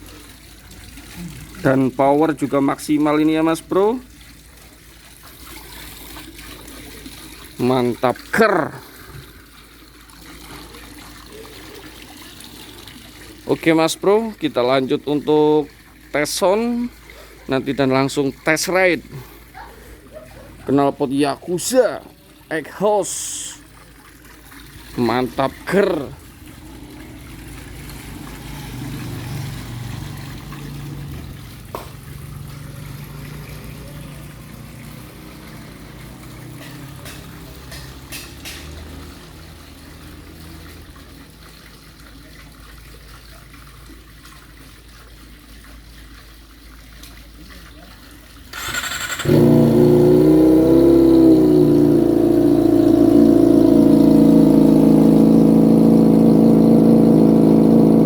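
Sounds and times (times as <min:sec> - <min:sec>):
motorcycle engine revving and idling: 0:25.9 - 0:40.8, 0:48.6 - 0:58.0
motorcycle engine cranking: 0:48.5 - 0:56.2.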